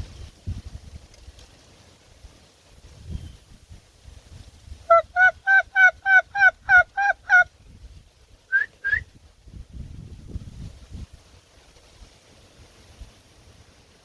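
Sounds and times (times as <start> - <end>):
turkey yelping: 4.9 - 7.5.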